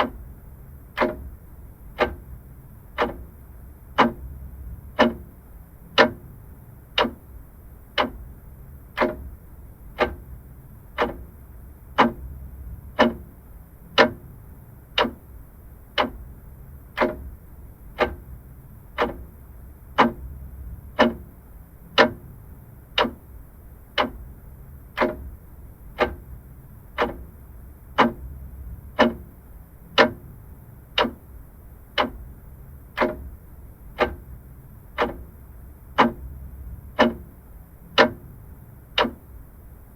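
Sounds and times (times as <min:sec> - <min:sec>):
faint low hum: 0:00.0 - 0:39.9
mechanical clock ticking: 0:00.0 - 0:39.9.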